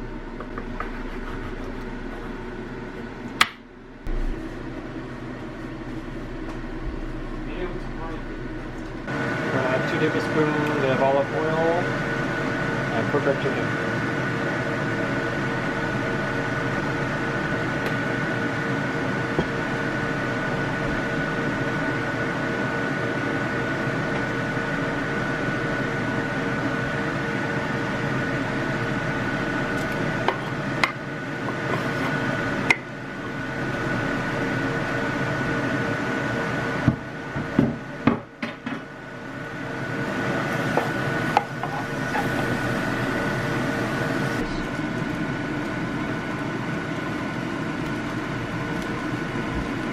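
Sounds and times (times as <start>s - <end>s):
steady hum: 0.0s - 49.9s.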